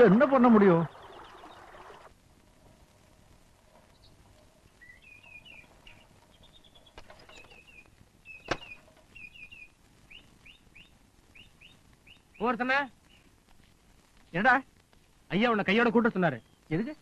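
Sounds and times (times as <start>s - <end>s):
birds chirping: 0.0s - 2.1s, 3.6s - 13.4s, 15.4s - 17.0s.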